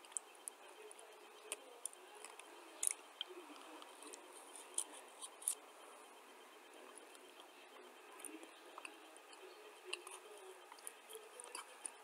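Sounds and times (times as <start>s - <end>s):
crisp crunching clicks: 1.4s - 3.0s.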